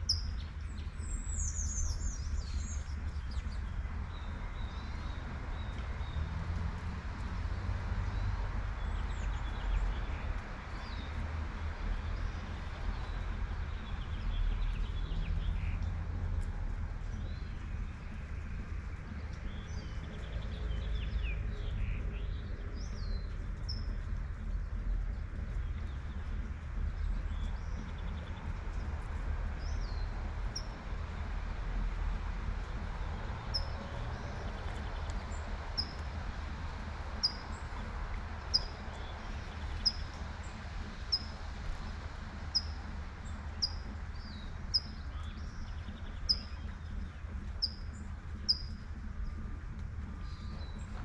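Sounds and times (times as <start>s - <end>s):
bird chirping: 0.0s - 5.8s, 37.2s - 37.6s, 42.5s - 49.4s
low rumble of traffic: 0.0s - 51.0s.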